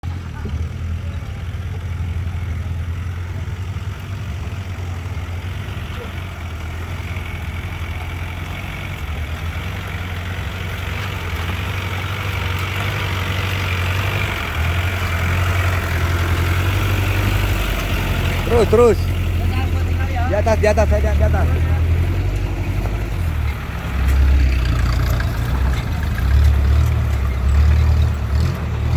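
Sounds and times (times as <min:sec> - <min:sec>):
off-road vehicle engine running: 0:00.0 - 0:28.9.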